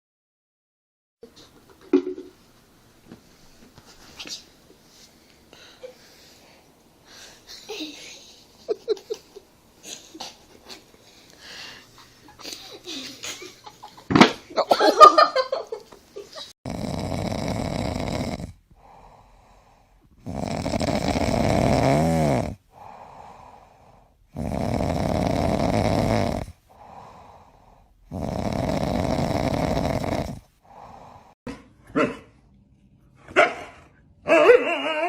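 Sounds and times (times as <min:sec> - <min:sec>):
dog snoring: 0:16.7 - 0:19.2, 0:20.2 - 0:23.6, 0:24.3 - 0:27.4, 0:28.0 - 0:31.2.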